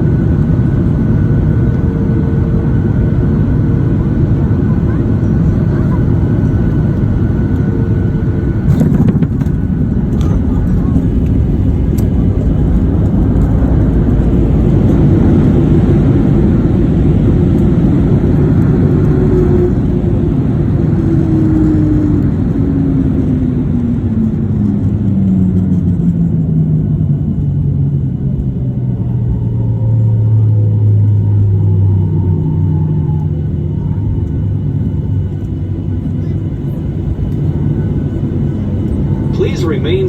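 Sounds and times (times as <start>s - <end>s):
airliner cabin rumble: 0.0s - 40.0s
jet engines spooling down: 29.4s - 40.0s.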